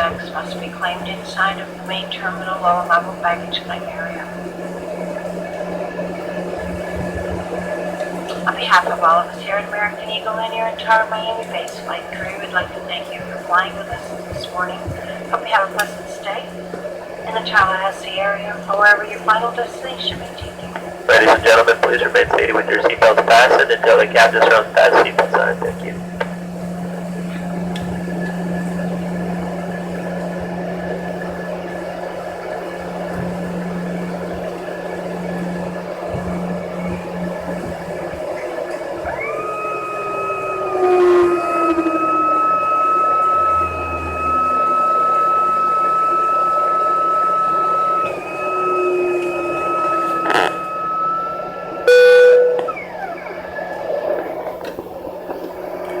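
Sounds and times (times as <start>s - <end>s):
faint high whine: 0.0s - 56.0s
jet cabin engine drone: 0.0s - 56.0s
loud horn-like tone: 39.1s - 53.2s.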